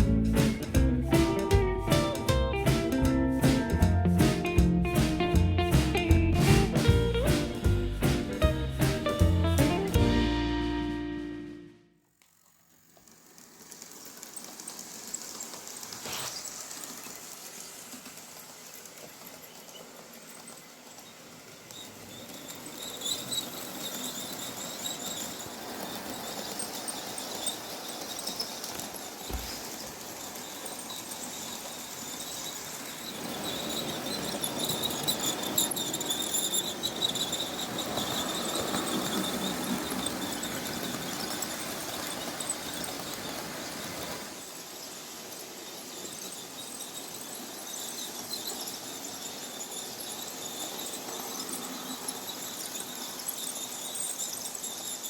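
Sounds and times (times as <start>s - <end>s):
wheel rumble: 0.0s - 11.8s, 12.8s - 45.1s
model train motor hum: 12.0s - 55.0s
high wheel squeal: 20.2s - 55.0s.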